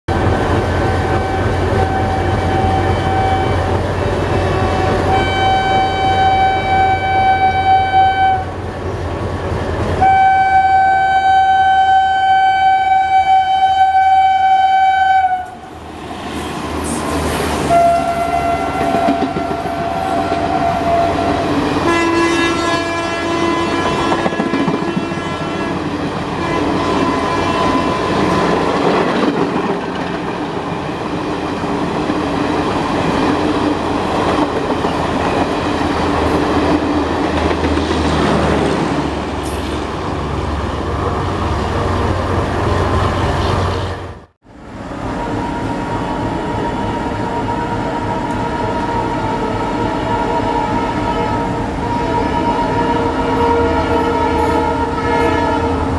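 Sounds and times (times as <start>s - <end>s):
train rushing past: 0.1s - 55.9s
locomotive horn: 0.3s - 8.6s, 10.0s - 15.7s, 17.6s - 28.6s, 45.1s - 55.9s.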